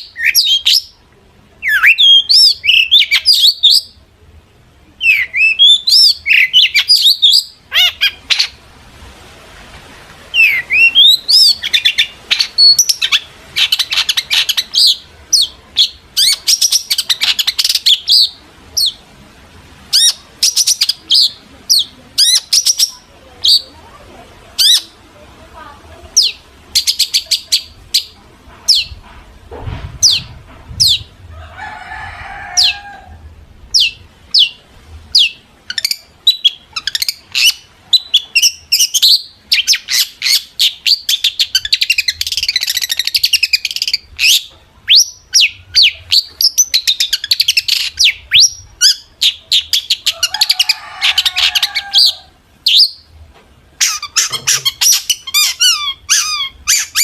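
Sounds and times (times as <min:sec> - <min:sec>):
bird harsh raspy chatter: 0:05.0 - 0:08.6, 0:24.6 - 0:25.0, 0:53.8 - 0:57.0.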